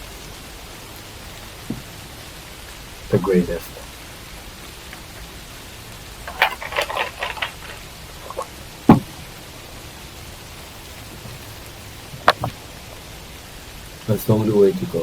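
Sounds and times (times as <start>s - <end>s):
background hiss: 0.0s - 15.0s
heavy thump: 1.6s - 2.0s, 8.9s - 9.2s, 12.2s - 12.7s.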